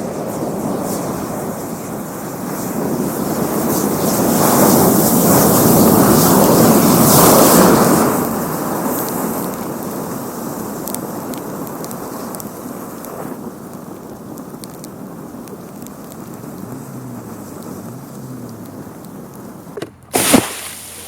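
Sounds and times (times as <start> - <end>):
sharp pops: 19.7 - 21.0.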